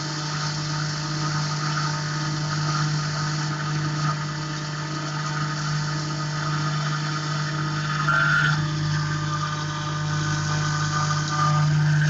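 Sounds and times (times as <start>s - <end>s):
coolant spraying: 0.0s - 12.0s
milling machine spindle hum: 0.0s - 12.0s
cutter hiss: 7.1s - 12.0s.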